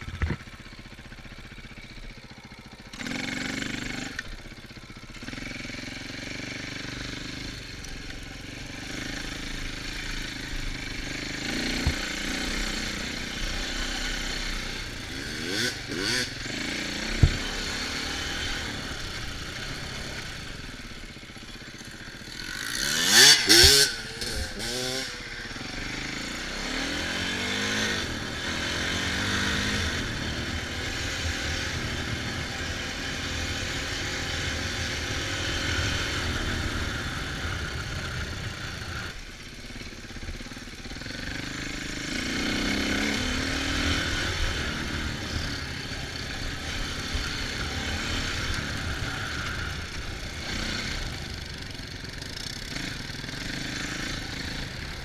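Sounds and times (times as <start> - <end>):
dirt bike engine revving: 2.2 - 55.0.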